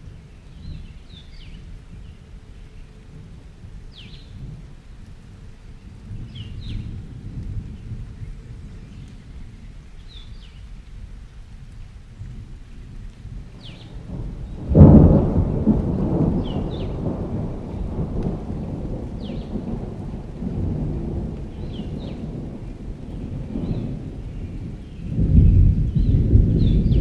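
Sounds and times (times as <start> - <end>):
steady rain: 0.0 - 27.0
low rumbling thunder: 5.5 - 10.5, 12.2 - 27.0
loud thunderclap: 13.6 - 27.0.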